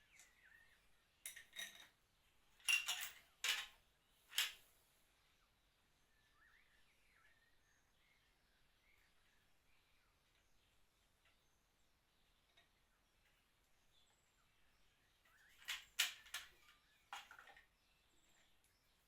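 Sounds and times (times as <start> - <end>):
faint birdsong: 0.0 - 19.0
steel tools clinking: 1.3 - 2.0, 2.6 - 3.7.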